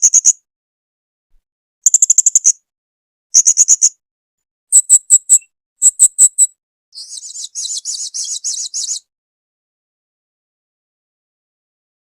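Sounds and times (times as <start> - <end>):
parrot chirping: 4.7 - 9.0.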